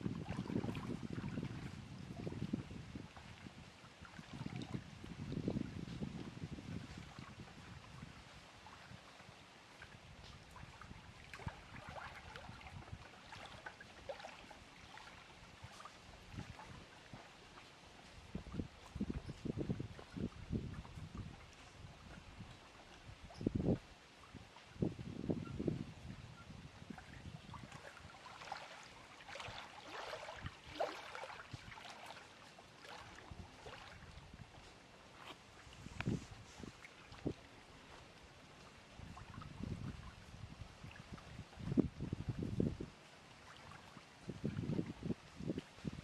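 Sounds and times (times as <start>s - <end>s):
water lapping at shore: 0.0s - 46.0s.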